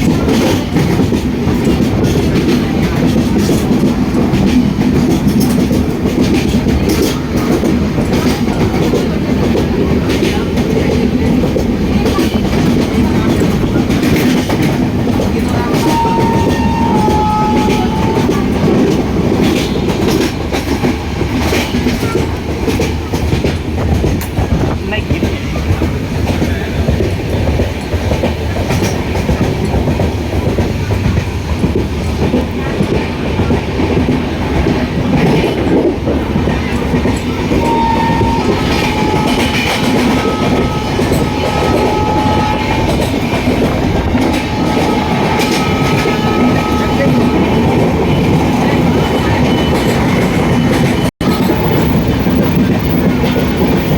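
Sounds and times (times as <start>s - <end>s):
train rumbling on track: 0.0s - 53.9s
wheels clacking over rails: 0.0s - 53.9s
thin high tones: 15.8s - 18.6s, 37.6s - 43.3s, 44.1s - 49.8s.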